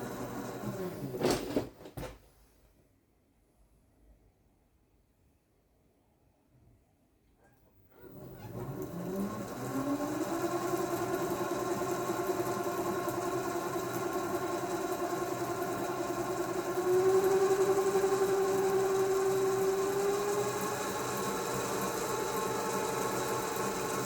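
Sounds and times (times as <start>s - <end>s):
lathe motor humming: 0.0s - 1.0s, 8.1s - 24.0s.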